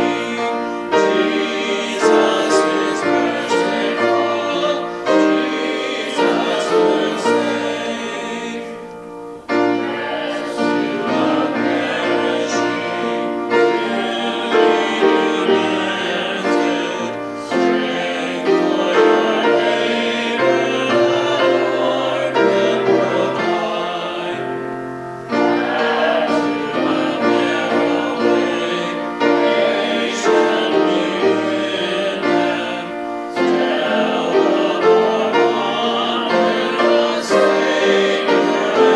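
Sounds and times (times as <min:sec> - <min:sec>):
piano accompaniment: 0:00.0 - 0:38.9
voices singing a hymn: 0:00.0 - 0:38.9.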